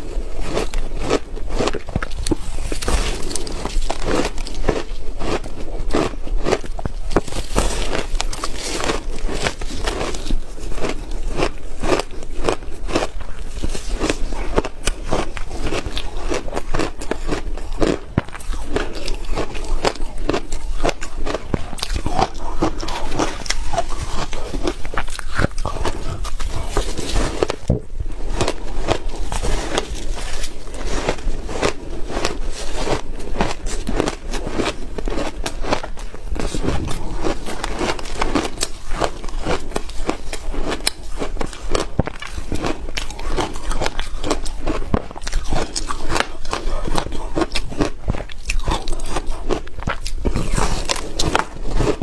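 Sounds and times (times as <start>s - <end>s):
ice crunching between teeth: 0.0s - 52.0s.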